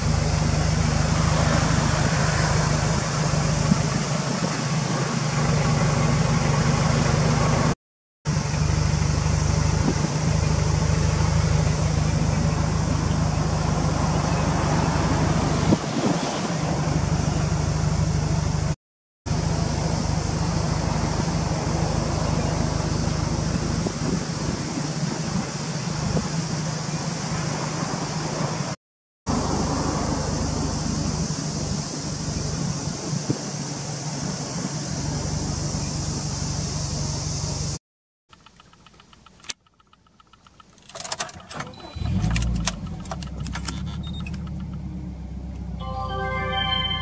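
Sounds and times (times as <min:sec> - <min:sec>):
car engine idling: 0:00.0 - 0:07.7, 0:08.3 - 0:15.4, 0:19.3 - 0:24.7
car engine starting and idling: 0:00.0 - 0:15.8, 0:34.7 - 0:47.0
starter cranking with clicks: 0:38.3 - 0:44.8.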